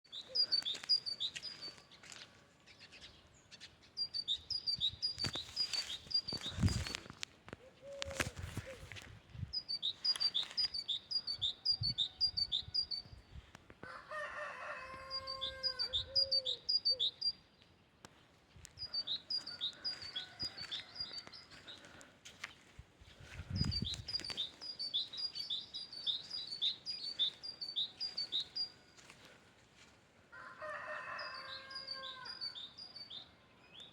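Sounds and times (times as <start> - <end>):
great tit singing: 0.1 - 1.9, 3.5 - 6.8, 9.5 - 13.1, 15.1 - 17.4, 18.8 - 21.9, 23.5 - 28.9.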